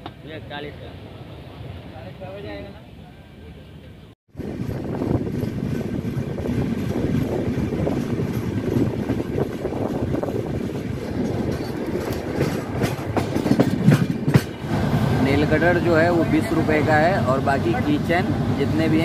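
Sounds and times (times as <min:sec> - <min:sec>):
train rumbling: 0:04.3 - 0:19.0
wheels clacking over rail joints: 0:04.6 - 0:19.0.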